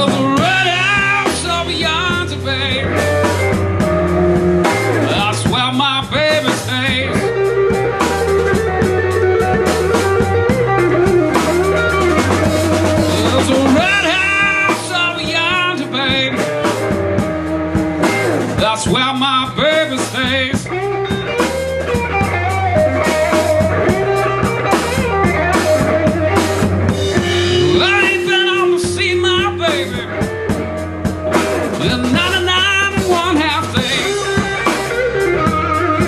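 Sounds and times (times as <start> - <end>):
blues band playing: 0.0 - 36.0
lead guitar with bent notes: 0.0 - 36.0.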